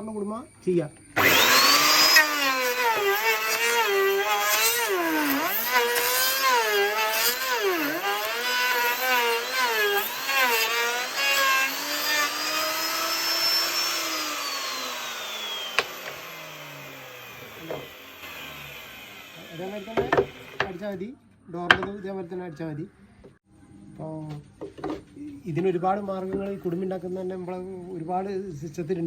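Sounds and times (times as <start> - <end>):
router winding down: 1.2 - 20.8
wood router whining: 1.2 - 21.0.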